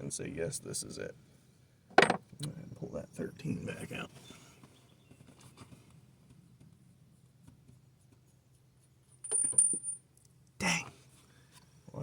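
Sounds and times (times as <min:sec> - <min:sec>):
metal part clinking on metal: 0:02.0 - 0:02.2.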